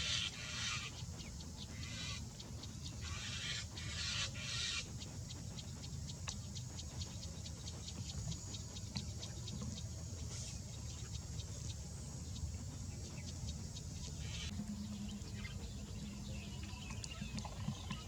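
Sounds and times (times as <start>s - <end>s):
harsh raspy bird calls: 0.0s - 5.1s
steady low hum: 0.0s - 18.0s.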